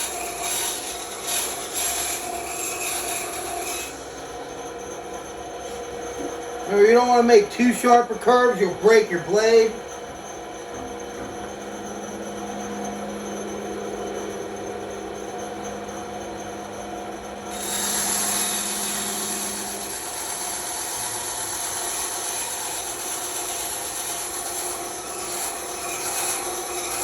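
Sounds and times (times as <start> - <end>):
blade cutting through wood: 0.0 - 4.0, 17.5 - 27.0
bandsaw humming: 0.0 - 27.0.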